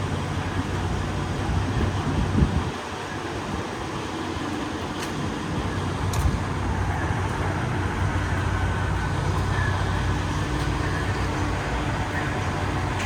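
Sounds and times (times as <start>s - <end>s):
diesel truck engine humming: 0.0s - 13.0s.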